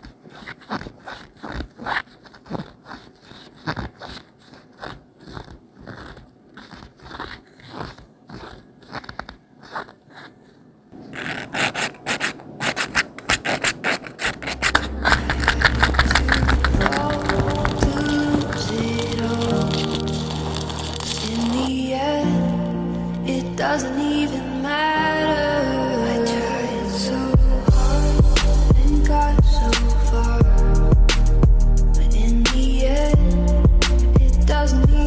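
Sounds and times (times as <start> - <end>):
irregular scraping and rubbing: 0.0 - 22.1.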